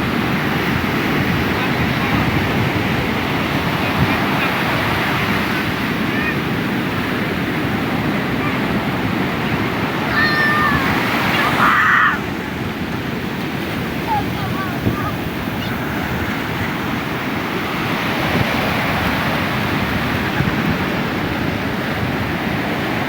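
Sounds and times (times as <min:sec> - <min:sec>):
surf breaking on a beach: 0:00.0 - 0:23.0
short cry: 0:10.1 - 0:12.2.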